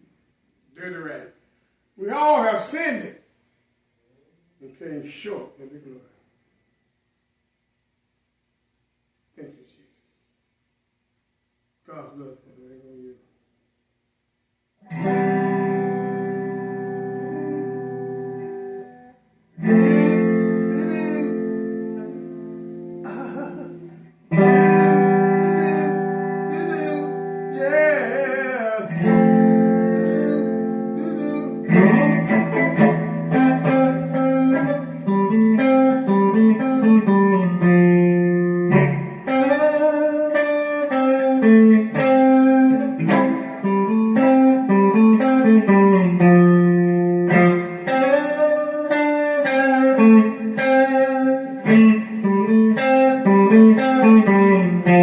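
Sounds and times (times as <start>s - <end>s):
instrumental guitar music: 14.8s - 55.0s.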